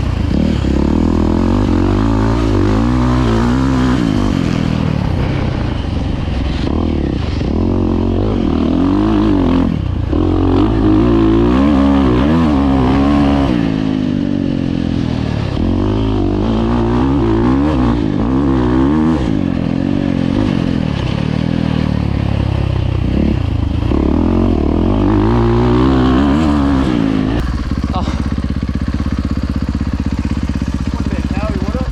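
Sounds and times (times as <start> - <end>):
dirt bike engines revving: 0.0 - 31.9.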